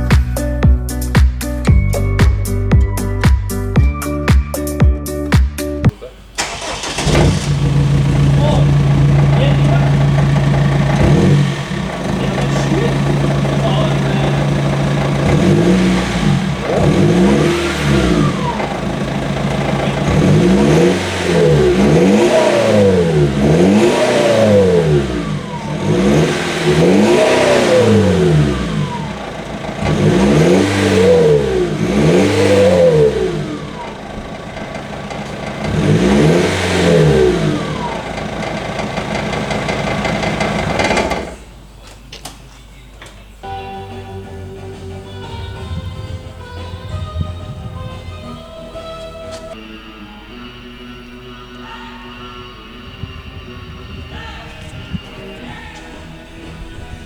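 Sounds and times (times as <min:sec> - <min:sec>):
car engine idling and revving: 0:05.9 - 0:41.6.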